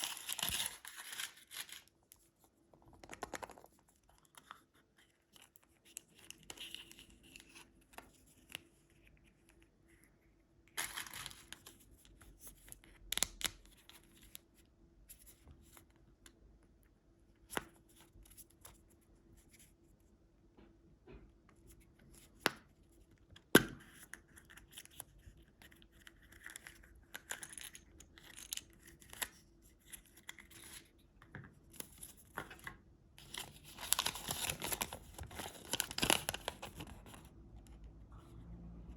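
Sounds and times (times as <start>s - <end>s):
candy wrapper rustling: 0.0s - 2.0s, 33.2s - 37.3s.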